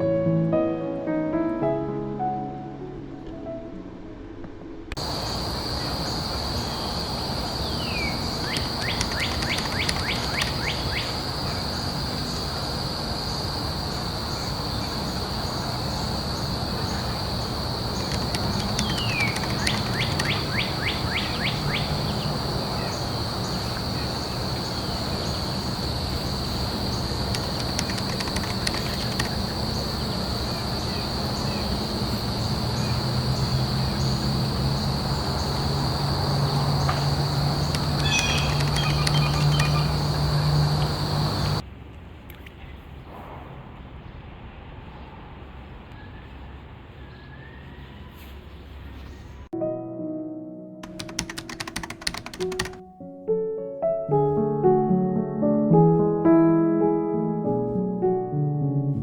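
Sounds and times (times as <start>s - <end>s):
background hiss: 4.7s - 45.0s
high-pitched insect drone: 5.0s - 41.6s
bird singing with trill: 7.6s - 11.2s, 18.0s - 25.6s, 36.8s - 41.6s.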